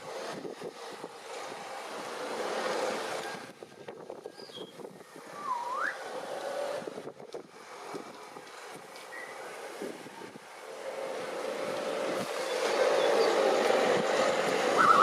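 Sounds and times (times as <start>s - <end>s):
steady noisy background: 0.0s - 15.0s
parrot whistling: 5.4s - 6.0s, 14.8s - 15.0s.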